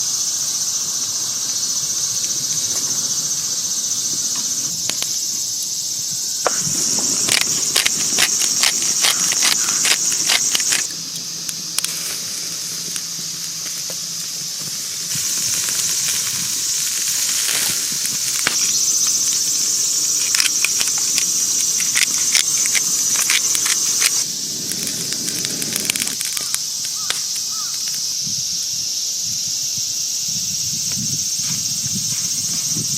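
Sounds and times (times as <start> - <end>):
meat sizzling over charcoal: 6.4 - 10.8, 14.6 - 27.7
coals crackling and popping: 6.4 - 14.0, 14.6 - 28.0.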